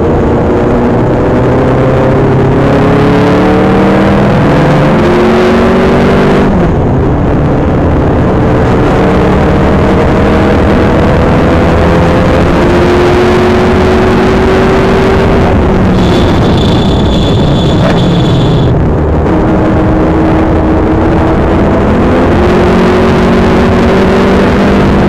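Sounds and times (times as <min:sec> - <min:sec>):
wind and road noise: 0:00.0 - 0:25.0
car engine accelerating: 0:00.2 - 0:25.0
gear upshifts: 0:15.7 - 0:18.8.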